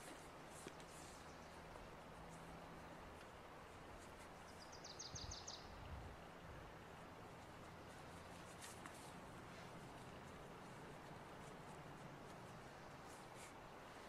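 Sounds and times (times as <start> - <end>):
soft thumps of cord handling: 0.0 - 1.2, 7.4 - 14.0
faint steady hiss: 0.0 - 14.0.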